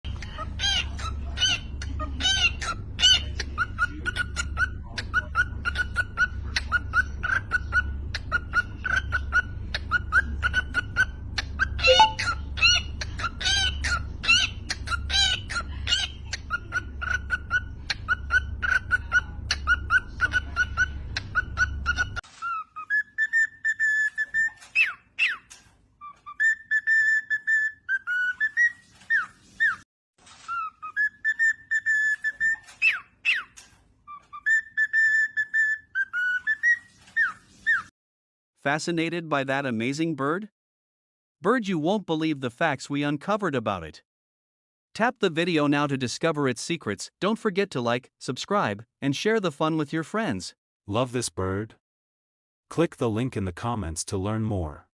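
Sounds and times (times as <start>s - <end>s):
cockatiel whistling: 5.4s - 13.7s, 17.0s - 29.8s, 30.5s - 37.9s.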